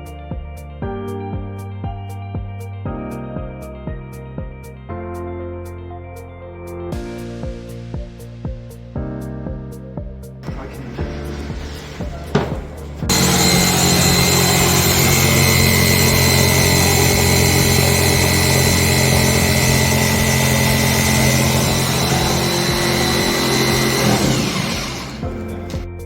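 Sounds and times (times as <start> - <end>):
power tool motor whining: 10.4 - 26.0.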